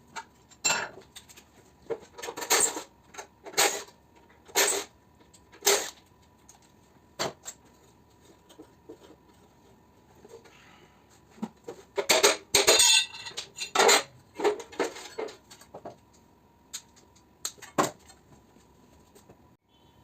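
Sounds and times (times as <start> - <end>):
faint steady hum: 0.0 - 20.0
metal pieces clinking and clattering: 12.1 - 14.0.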